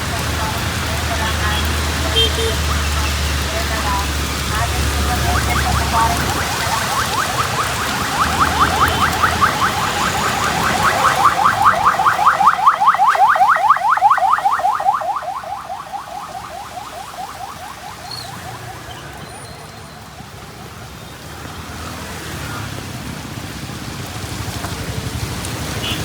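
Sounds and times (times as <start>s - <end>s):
car alarm rapid chirping: 4.6s - 20.2s.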